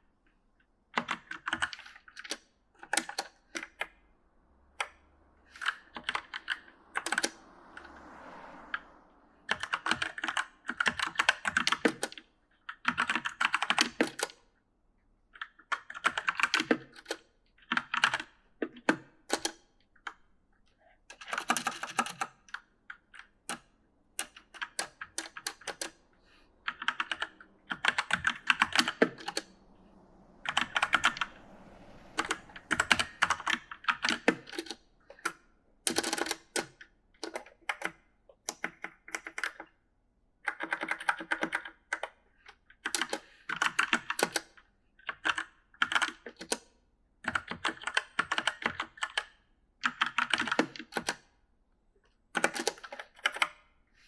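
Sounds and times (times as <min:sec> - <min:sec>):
mechanical keyboard typing: 0:01.0 - 0:03.8, 0:09.5 - 0:14.4, 0:15.4 - 0:19.5, 0:21.2 - 0:22.3, 0:24.2 - 0:26.0, 0:26.7 - 0:29.5, 0:32.2 - 0:39.7, 0:40.4 - 0:42.2, 0:42.8 - 0:46.6, 0:47.2 - 0:51.2, 0:52.4 - 0:53.5.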